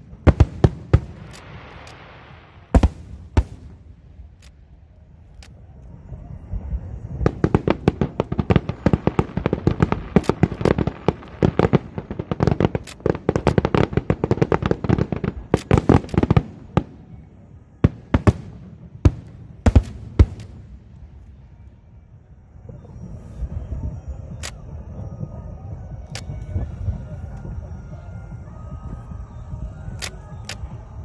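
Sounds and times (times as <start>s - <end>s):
fireworks bangs: 0.0s - 4.9s, 6.5s - 21.6s.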